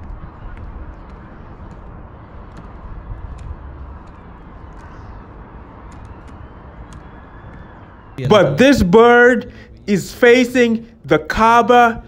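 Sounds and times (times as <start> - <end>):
faint hubbub: 8.2 - 12.0.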